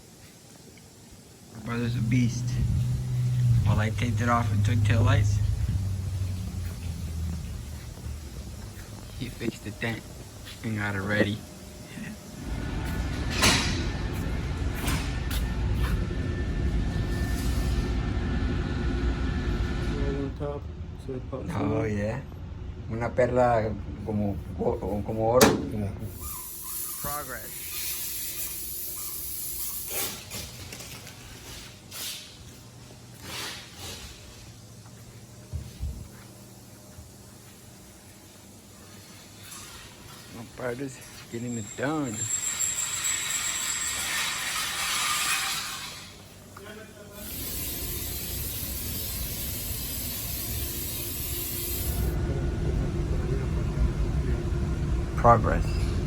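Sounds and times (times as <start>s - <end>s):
low steady hum: 1.0s - 26.1s
air tool hissing bursts: 26.1s - 30.2s, 47.2s - 52.2s.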